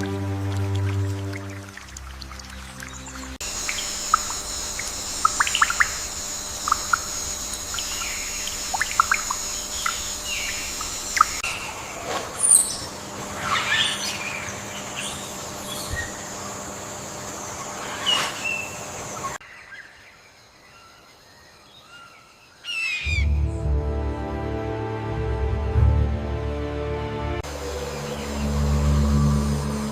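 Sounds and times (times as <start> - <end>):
birds chirping: 1.1 - 23.4
sweeping bird calls: 2.5 - 16.6, 17.2 - 21.0
high-pitched drone: 3.4 - 11.7, 27.4 - 29.9.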